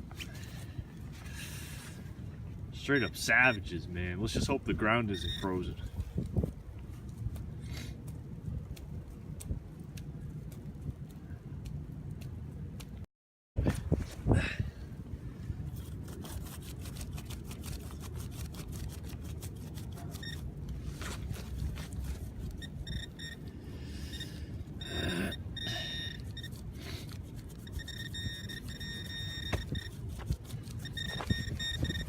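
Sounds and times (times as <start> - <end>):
pinpointer beeping: 3.0 - 3.7, 5.1 - 5.7, 20.2 - 20.4, 22.6 - 26.6, 27.6 - 29.9, 30.8 - 32.0
wind rumble on microphone: 4.1 - 13.0, 13.6 - 18.0, 27.2 - 32.0.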